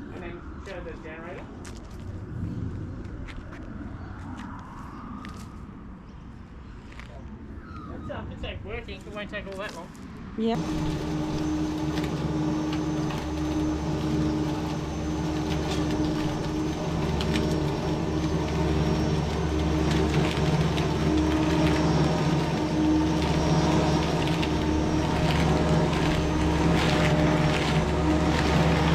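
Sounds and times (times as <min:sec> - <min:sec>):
electric lawn mower humming: 0:10.6 - 0:28.9
grass ticks: 0:10.6 - 0:28.9.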